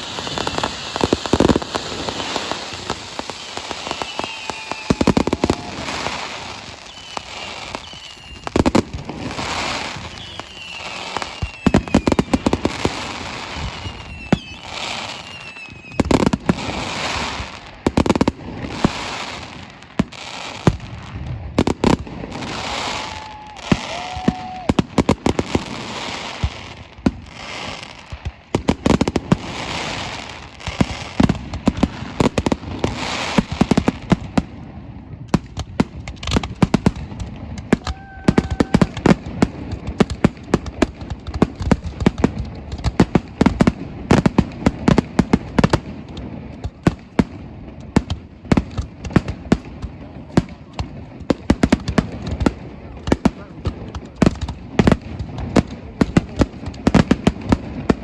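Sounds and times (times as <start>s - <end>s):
fireworks hiss: 0.0s - 34.6s
fireworks bangs and crackles: 0.0s - 58.0s.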